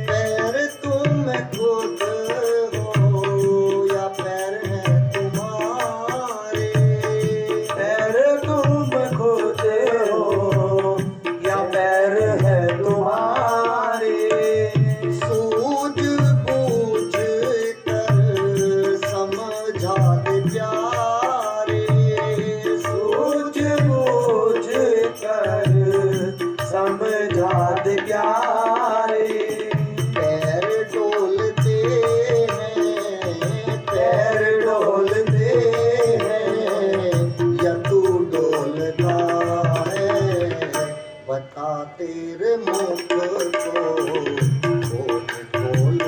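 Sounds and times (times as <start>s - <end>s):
tabla beating a rhythm: 0.0s - 46.0s.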